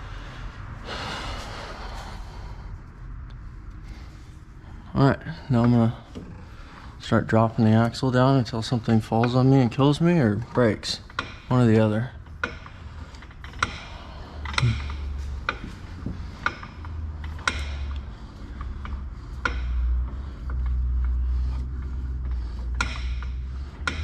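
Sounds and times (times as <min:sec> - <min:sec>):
low steady rumble: 0:00.0 - 0:24.0
metallic clicks and creaks: 0:05.4 - 0:24.0.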